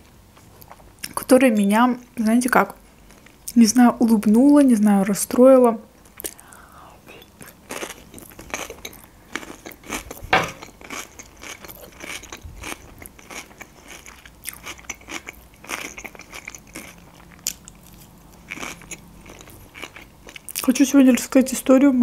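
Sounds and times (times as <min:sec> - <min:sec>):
person chewing food: 0:06.0 - 0:20.6.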